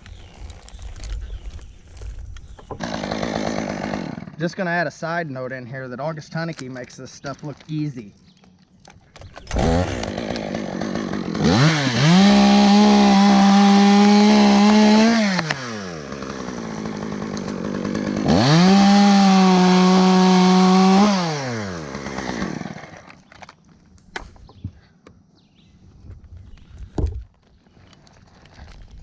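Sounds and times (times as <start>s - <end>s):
chainsaw revving: 2.8s - 4.4s, 9.4s - 23.2s.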